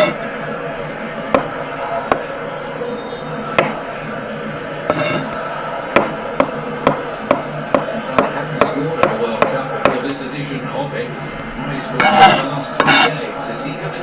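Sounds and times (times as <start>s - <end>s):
knife chopping on cutting board: 0.0s - 0.3s, 3.6s - 4.0s, 4.9s - 5.4s, 6.0s - 10.2s, 12.0s - 13.2s.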